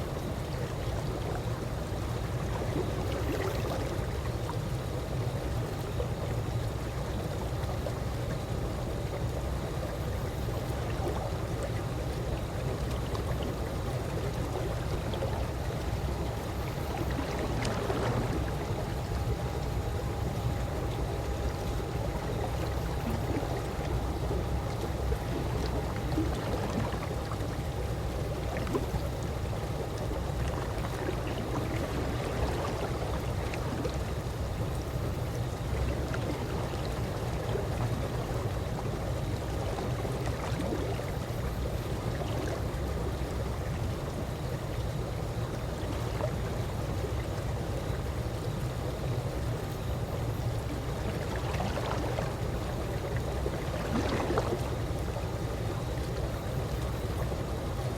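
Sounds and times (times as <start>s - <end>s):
pool water lapping: 0.0s - 57.9s.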